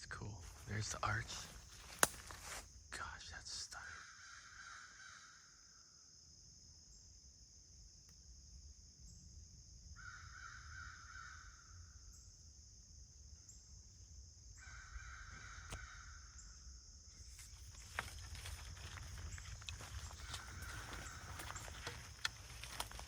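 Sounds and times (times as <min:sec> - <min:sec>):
crow cawing: 0:03.8 - 0:05.6, 0:10.0 - 0:11.7, 0:14.6 - 0:16.4, 0:18.8 - 0:23.0.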